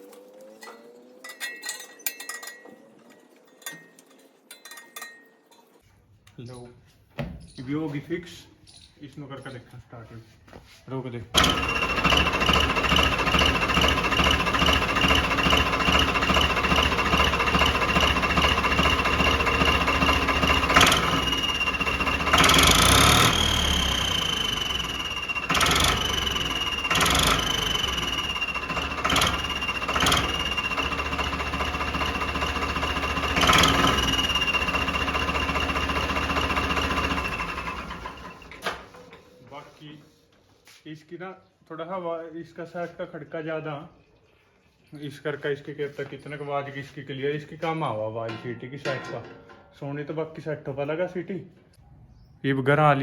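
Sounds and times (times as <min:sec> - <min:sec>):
diesel tractor engine revving: 0:11.4 - 0:38.6.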